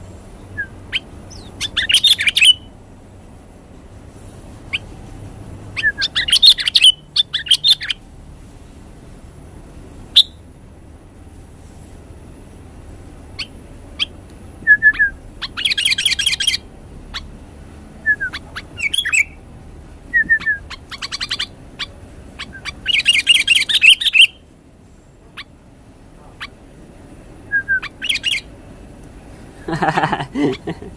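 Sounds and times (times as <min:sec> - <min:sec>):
songbirds chirping: 0:00.0 - 0:30.9
rapid bird chirping trills: 0:00.3 - 0:02.8, 0:05.7 - 0:08.1, 0:13.3 - 0:17.4, 0:18.0 - 0:19.5, 0:20.1 - 0:24.5, 0:27.7 - 0:28.6.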